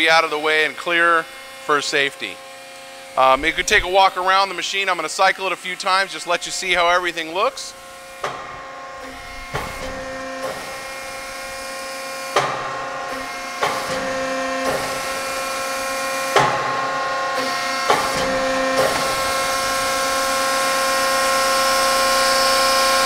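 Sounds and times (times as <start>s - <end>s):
hydraulic press whine: 0.0s - 23.0s
sharp machine knock: 8.2s - 8.6s, 12.3s - 15.6s, 16.2s - 19.8s.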